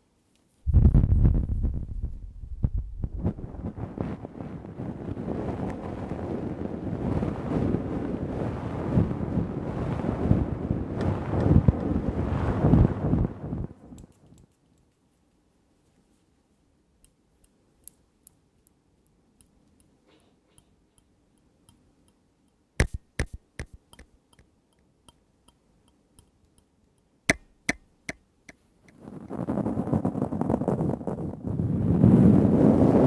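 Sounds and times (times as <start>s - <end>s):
pen ticking and tapping: 20.6s - 26.7s, 27.3s - 29.0s
pen scratching on paper: 22.8s - 23.8s
pen clicks: 22.8s - 24.2s.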